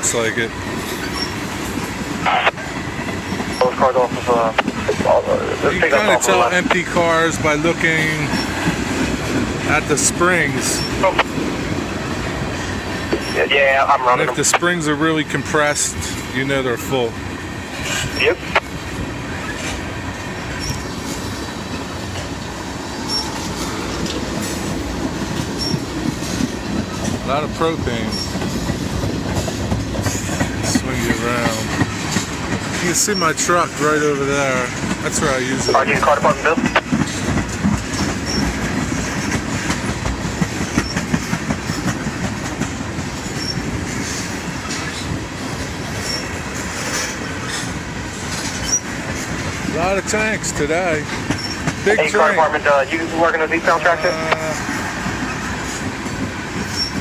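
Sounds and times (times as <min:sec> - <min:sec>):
freight train wheels on rails: 0:00.0 - 0:57.0
train wheel squeals: 0:00.8 - 0:02.0, 0:08.0 - 0:08.8, 0:10.6 - 0:11.1, 0:13.1 - 0:13.4, 0:19.3 - 0:19.8, 0:20.4 - 0:21.5, 0:22.9 - 0:24.7, 0:25.4 - 0:26.6, 0:27.9 - 0:28.8, 0:30.0 - 0:34.8, 0:37.0 - 0:42.1, 0:43.1 - 0:45.2, 0:45.9 - 0:49.6, 0:51.1 - 0:51.8, 0:56.6 - 0:57.0.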